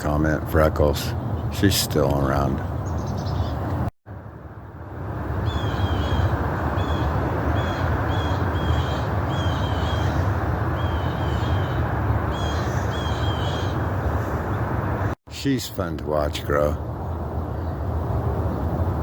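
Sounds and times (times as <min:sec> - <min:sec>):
bird high chirps: 0:02.7 - 0:03.6, 0:05.4 - 0:13.8.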